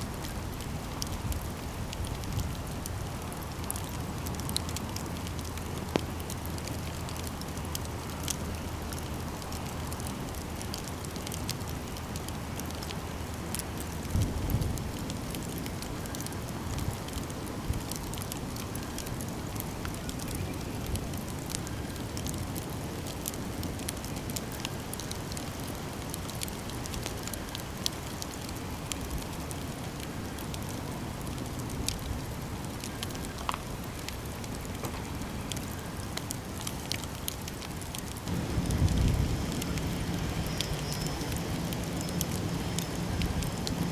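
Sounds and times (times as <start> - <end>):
campfire crackling: 0.0 - 43.9.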